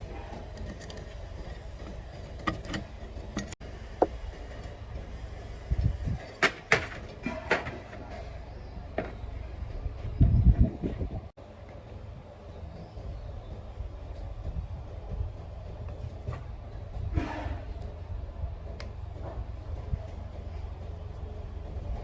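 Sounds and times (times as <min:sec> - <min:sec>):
tools knocking and clinking: 0:00.3 - 0:04.2
low steady rumble: 0:08.0 - 0:22.0.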